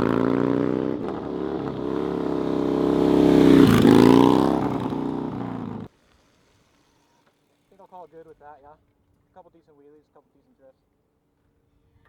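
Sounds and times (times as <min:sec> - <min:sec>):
motorcycle engine revving: 0:00.0 - 0:05.9.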